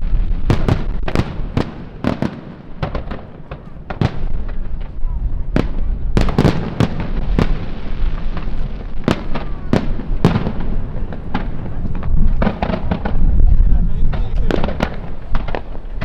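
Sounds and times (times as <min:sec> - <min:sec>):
fireworks rumble and crackle: 0:00.0 - 0:16.0
firework shell bangs: 0:08.4 - 0:13.3, 0:14.1 - 0:16.0.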